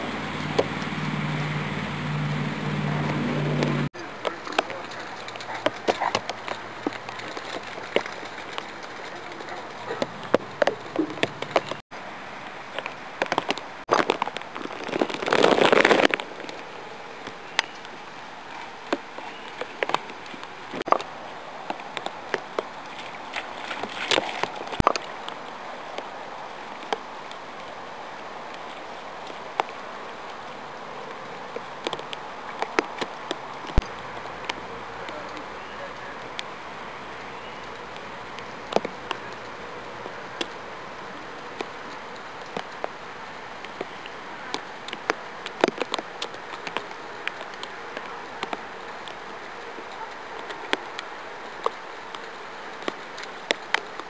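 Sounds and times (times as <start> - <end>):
wet snow pattering: 0.0 - 11.8, 12.4 - 54.0.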